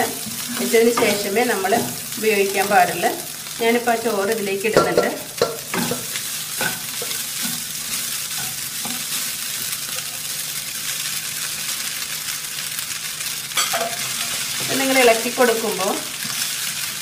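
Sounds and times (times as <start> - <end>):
food sizzling in a pan: 0.0 - 17.0
metal spatula scraping: 4.7 - 10.4, 13.6 - 15.0.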